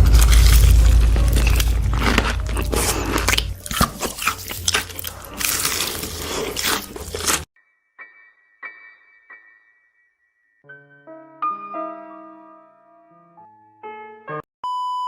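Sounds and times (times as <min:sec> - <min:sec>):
low rumble: 0:00.0 - 0:03.6
crunching and chewing: 0:00.0 - 0:07.5.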